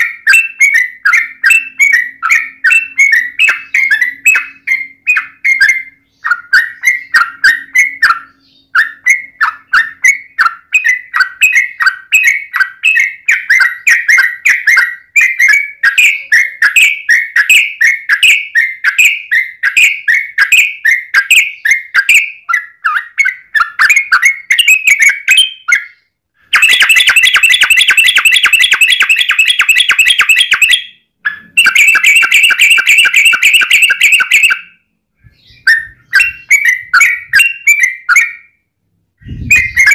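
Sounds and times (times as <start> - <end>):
bird chattering notes: 0.0 - 20.6, 26.5 - 34.7, 35.3 - 38.4, 39.2 - 39.9
bird rattling trills: 26.6 - 30.8.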